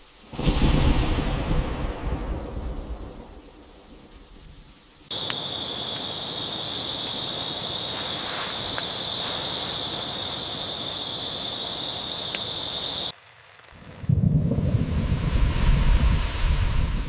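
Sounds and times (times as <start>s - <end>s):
high-pitched insect chorus: 0.0s - 13.2s.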